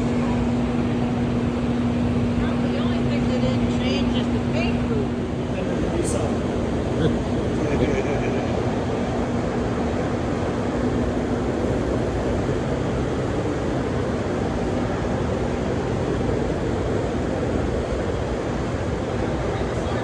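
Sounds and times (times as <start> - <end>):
faint hum: 0.0 - 20.0
ventilation and machinery rush: 0.0 - 20.0.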